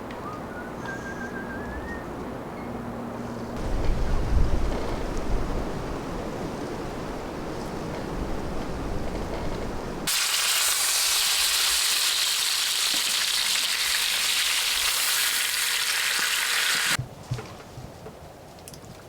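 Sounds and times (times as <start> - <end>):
low rumble of wind: 0.0 - 10.1
food sizzling in a hot pan: 10.1 - 17.0.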